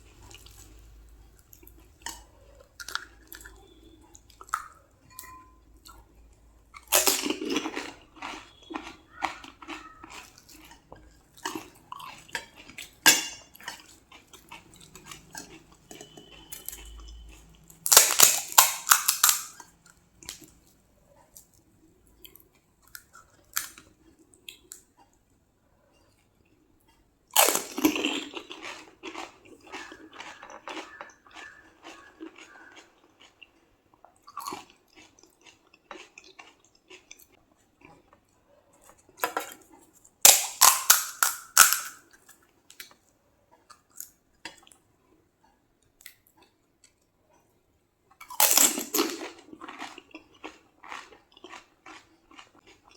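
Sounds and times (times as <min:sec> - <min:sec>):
chewing crispy food: 0:00.0 - 0:52.9
loud crunchy bites: 0:06.8 - 0:10.7, 0:14.2 - 0:19.6, 0:27.4 - 0:33.3, 0:40.2 - 0:42.1, 0:48.3 - 0:52.8.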